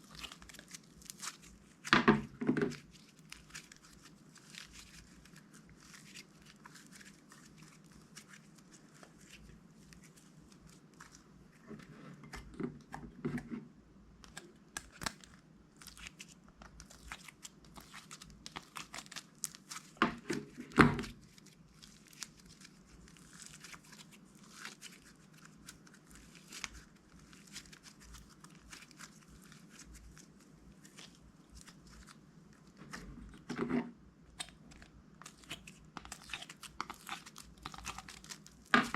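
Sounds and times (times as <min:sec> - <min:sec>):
slime crackling: 0:00.0 - 0:02.0, 0:02.7 - 0:11.6, 0:14.2 - 0:33.5, 0:34.3 - 0:38.9
packaging crinkling: 0:14.3 - 0:33.5, 0:34.4 - 0:38.9.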